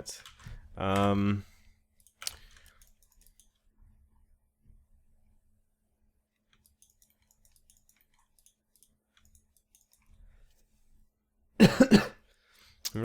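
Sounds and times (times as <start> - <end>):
mouse and keyboard clicks: 2.0 - 3.6, 6.5 - 10.1.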